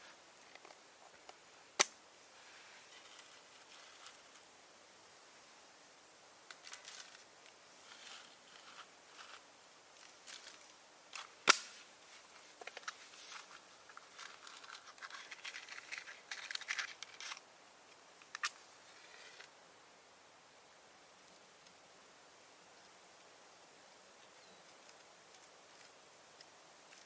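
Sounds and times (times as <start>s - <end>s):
small clicks and scrapes of tools: 0.4s - 1.4s, 2.8s - 4.5s, 6.5s - 19.5s, 24.7s - 27.0s.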